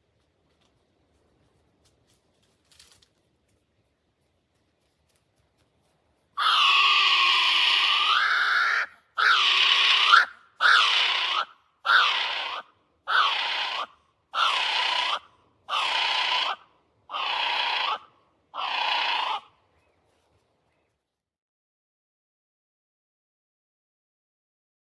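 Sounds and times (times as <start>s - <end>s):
kiwi bird calling: 6.4s - 20.0s.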